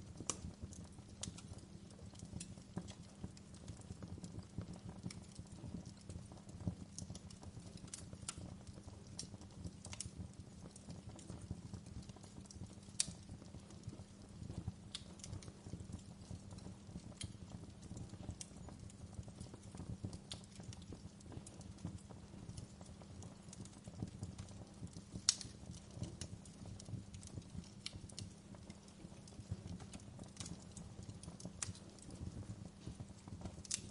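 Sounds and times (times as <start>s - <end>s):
low rumble of flames: 0.0s - 33.9s
wood fire crackling and popping: 0.0s - 33.9s.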